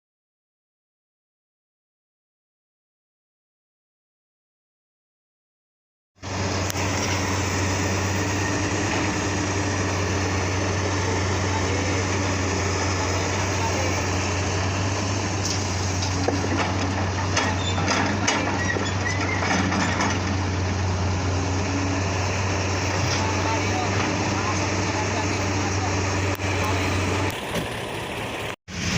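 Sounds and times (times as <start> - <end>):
heavy diesel engine running: 6.2 - 28.9.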